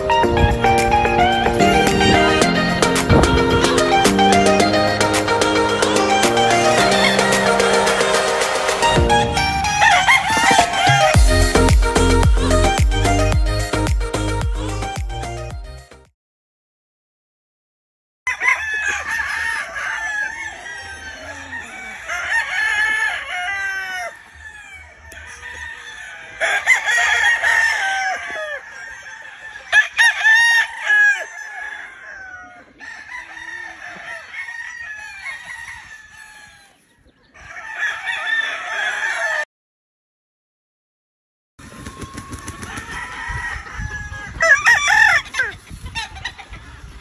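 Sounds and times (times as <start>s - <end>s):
roosters crowing: 0.0s - 12.6s, 18.3s - 39.5s, 41.7s - 47.0s
chickens clucking: 9.6s - 11.2s, 36.7s - 37.5s, 41.7s - 47.0s.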